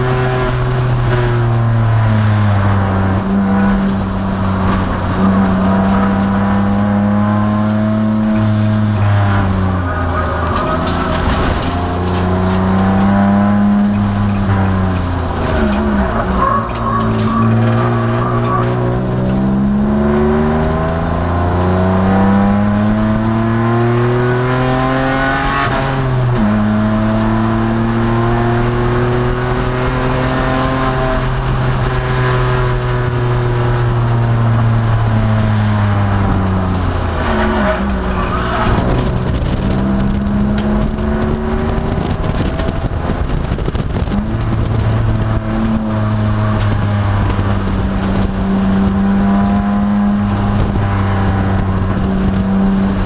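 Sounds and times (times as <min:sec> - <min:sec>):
car engine accelerating: 0:00.0 - 0:53.0.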